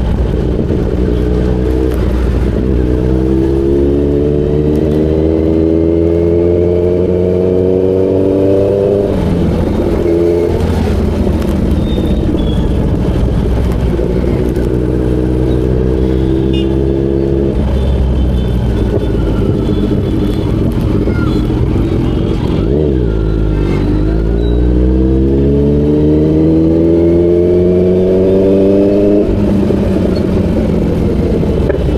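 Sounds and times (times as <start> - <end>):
motorcycle engine running: 6.6 - 23.4.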